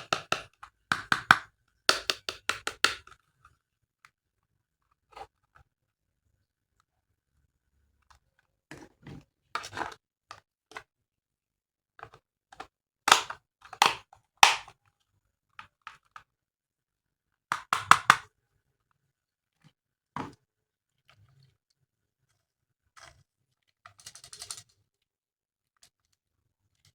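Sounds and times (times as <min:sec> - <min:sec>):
plastic toy parts clicking: 0:00.0 - 0:03.0.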